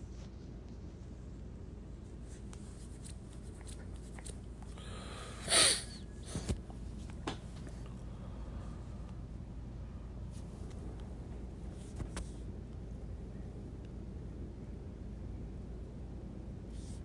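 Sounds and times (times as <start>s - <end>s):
low room hum: 0.0s - 17.0s
person breathing loudly: 4.7s - 6.5s.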